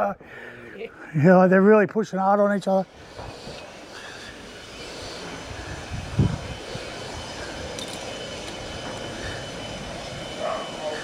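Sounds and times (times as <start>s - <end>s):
chainsaw engine running: 2.8s - 11.0s.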